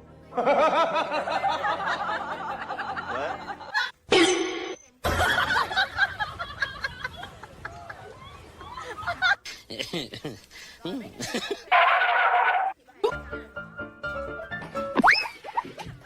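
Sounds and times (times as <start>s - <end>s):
laughter: 0.3s - 4.0s, 5.0s - 10.5s, 11.2s - 11.7s, 15.0s - 16.0s.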